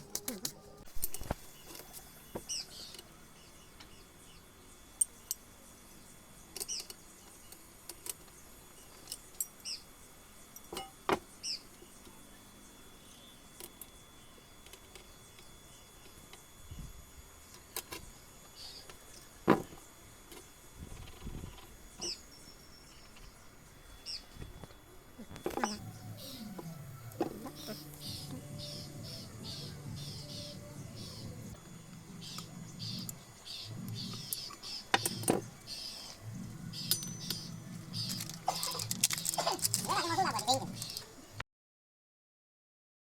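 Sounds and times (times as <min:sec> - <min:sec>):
hand tools and metal parts clinking: 0:06.5 - 0:09.8, 0:36.7 - 0:41.1.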